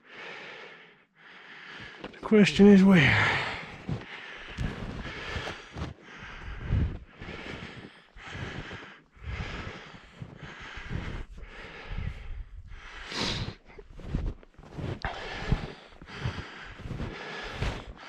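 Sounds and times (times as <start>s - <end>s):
person breathing hard: 0.0s - 2.1s, 3.0s - 18.0s
footsteps: 3.4s - 12.2s, 13.3s - 18.0s.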